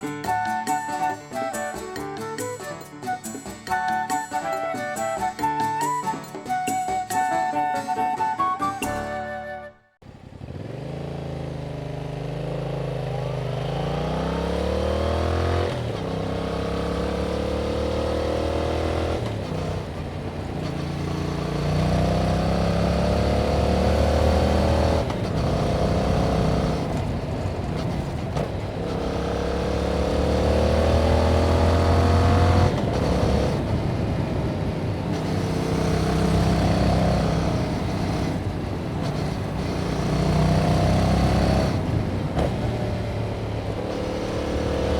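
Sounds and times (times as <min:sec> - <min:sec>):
motorcycle engine accelerating: 0:10.0 - 0:44.9.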